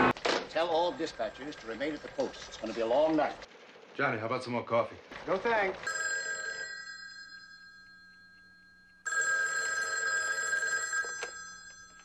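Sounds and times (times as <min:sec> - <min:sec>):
telephone bell ringing: 0:05.8 - 0:12.0.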